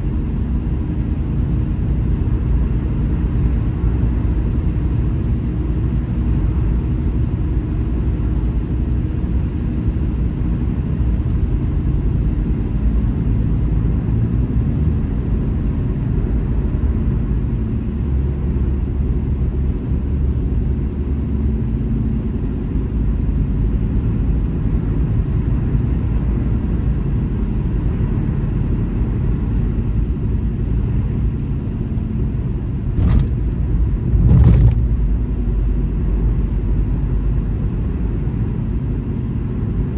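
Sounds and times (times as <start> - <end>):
car rumbling on highway: 0.0 - 39.9
sharp knocks: 33.0 - 35.2.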